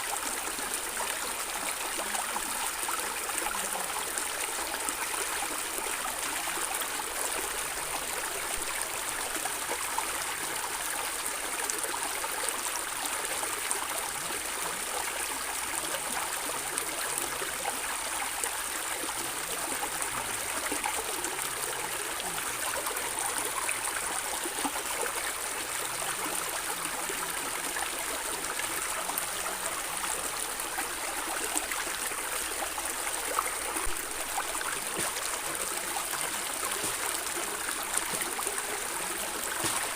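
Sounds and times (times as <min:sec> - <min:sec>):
stream water gurgling over stones: 0:00.0 - 0:39.9.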